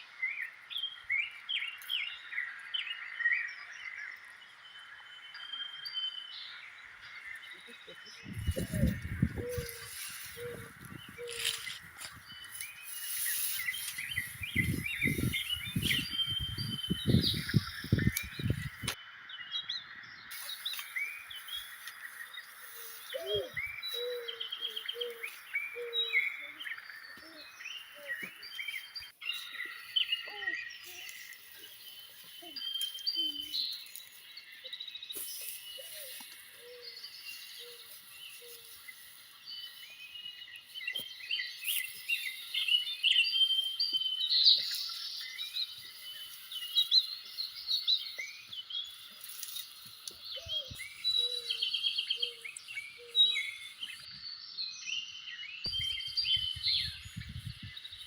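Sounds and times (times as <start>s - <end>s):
birds chirping and calling: 0.0s - 58.0s
short low bird calls: 8.2s - 12.2s, 22.5s - 28.8s.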